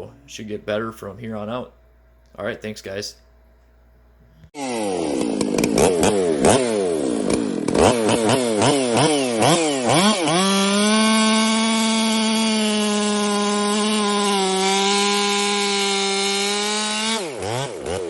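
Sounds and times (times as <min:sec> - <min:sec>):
chainsaw revving: 0:04.5 - 0:18.0.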